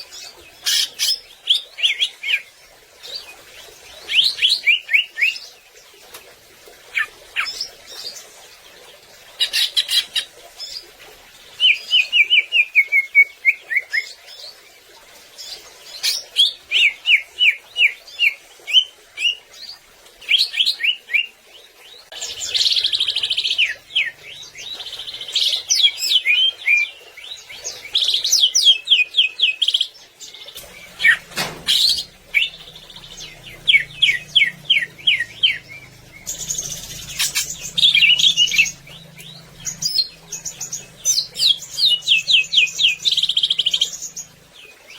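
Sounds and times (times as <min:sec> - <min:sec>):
faint low hum: 0:30.5 - 0:44.7.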